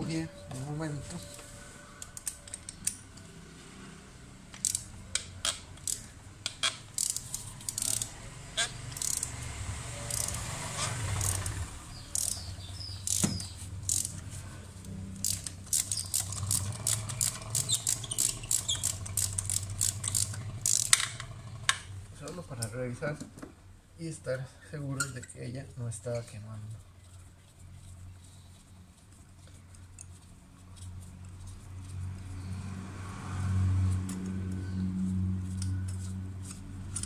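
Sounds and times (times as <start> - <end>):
ratchet clicks: 4.5 - 9.4, 10.0 - 14.2, 14.8 - 21.9, 35.5 - 37.0
hand tools clicking and clinking: 4.6 - 8.2, 12.1 - 14.2, 15.1 - 21.1, 35.4 - 37.0.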